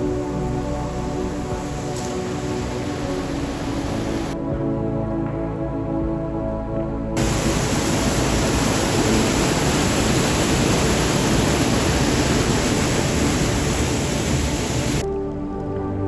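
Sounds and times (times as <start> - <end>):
river water rushing over rocks: 0.7 - 4.4, 7.2 - 15.0.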